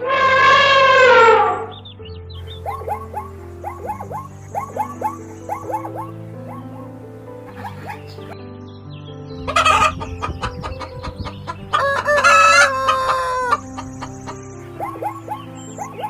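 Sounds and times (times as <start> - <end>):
background music sustained notes: 0.0 - 16.0
noisy squawk: 2.5 - 8.4, 9.5 - 16.0
rooster crowing: 11.7 - 13.8.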